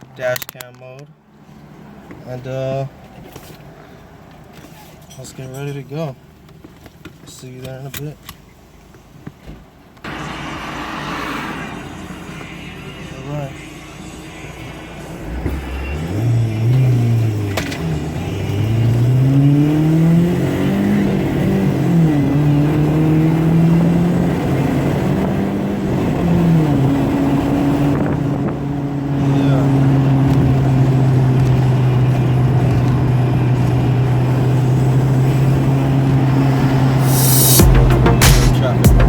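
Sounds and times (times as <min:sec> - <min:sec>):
car engine accelerating: 0:10.0 - 0:39.0.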